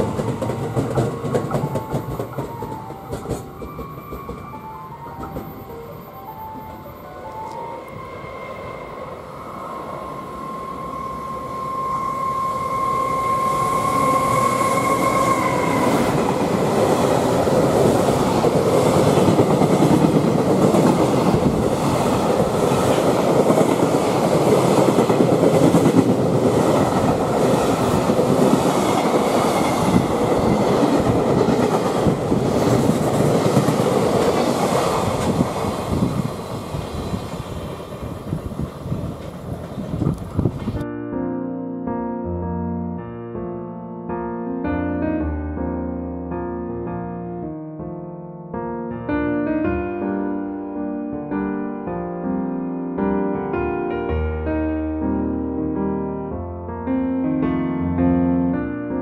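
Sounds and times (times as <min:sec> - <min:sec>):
steady high tone: 0:00.0 - 0:19.9.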